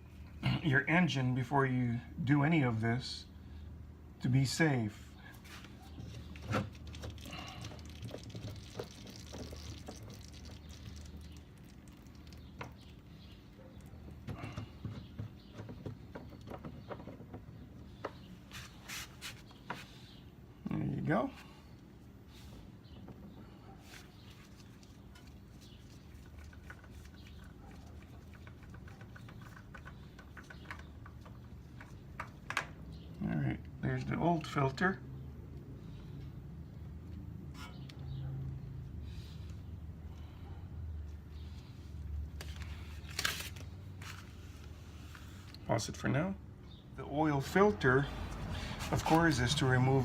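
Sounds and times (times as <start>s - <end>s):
oil filter clicks and scrapes: 6.1s - 13.0s, 24.5s - 32.4s
oil filter clicks and knocks: 6.3s - 12.9s, 14.0s - 18.2s.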